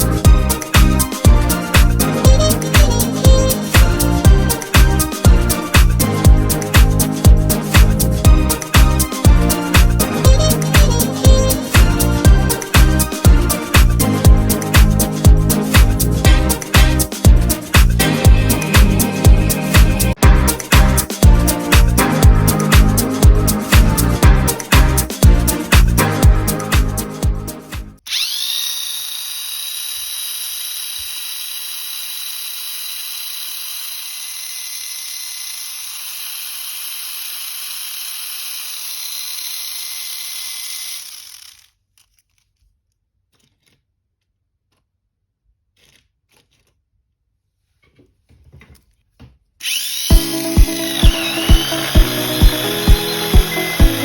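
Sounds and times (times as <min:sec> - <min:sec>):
small electric motor whine: 0:28.1 - 0:41.7, 0:49.6 - 0:54.0.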